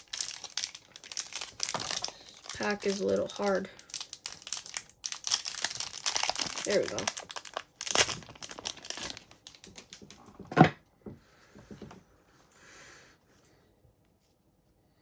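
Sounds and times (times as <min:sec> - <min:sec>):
foil wrapper crinkling and tearing: 0:00.0 - 0:10.2.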